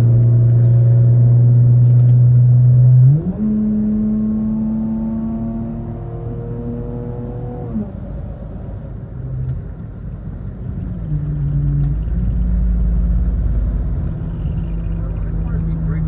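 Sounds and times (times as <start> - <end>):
car engine while driving: 0.0 - 16.0
road rumble: 0.0 - 16.0
low drone: 10.8 - 16.0.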